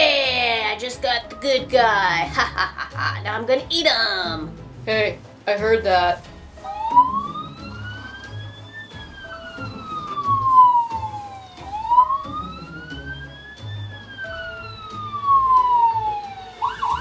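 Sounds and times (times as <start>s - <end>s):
police siren wailing: 6.6s - 17.0s.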